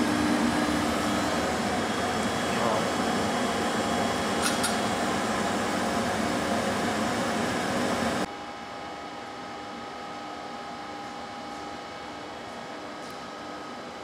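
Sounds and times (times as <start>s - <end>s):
lathe machine hum: 0.0s - 8.3s.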